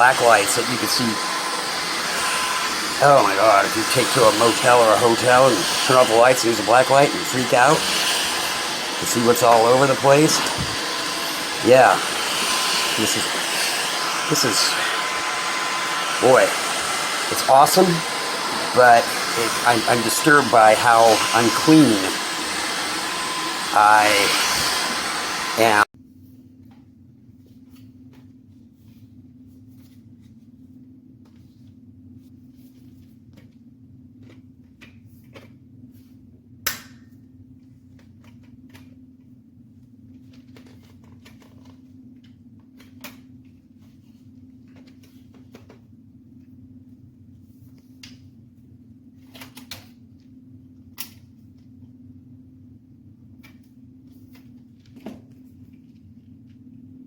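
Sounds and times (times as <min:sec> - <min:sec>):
vacuum cleaner humming: 0:00.0 - 0:25.9.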